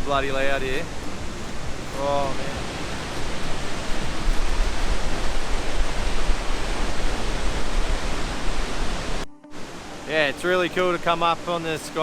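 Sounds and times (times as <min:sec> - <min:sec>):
roar of waterfall: 0:00.2 - 0:11.0.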